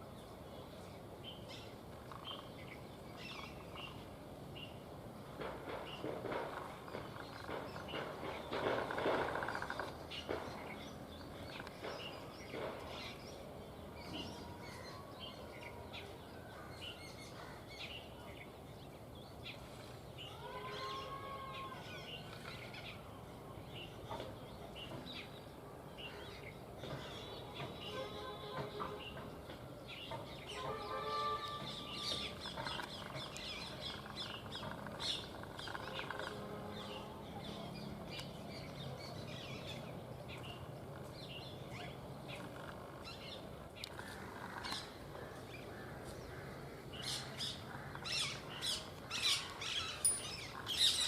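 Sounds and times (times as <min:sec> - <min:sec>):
outdoor background noise: 0:00.0 - 0:51.0
small birds chirping: 0:28.7 - 0:51.0.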